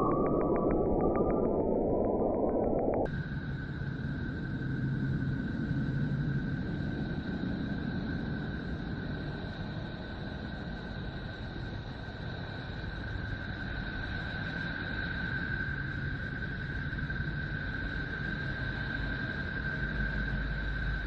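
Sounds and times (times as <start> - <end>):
eerie high tone: 0.0 - 3.1.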